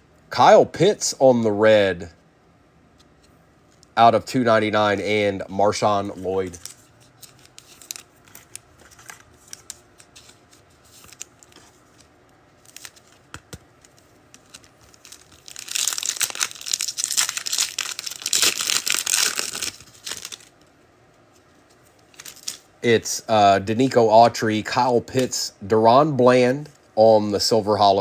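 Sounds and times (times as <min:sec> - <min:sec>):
card pack wrapper tearing: 0:05.9 - 0:20.5, 0:22.1 - 0:22.6.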